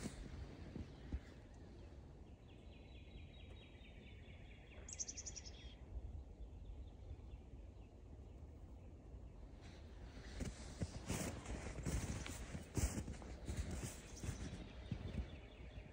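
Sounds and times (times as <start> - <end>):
low outdoor rumble: 0.0 - 15.9
songbird trilling: 3.2 - 5.8.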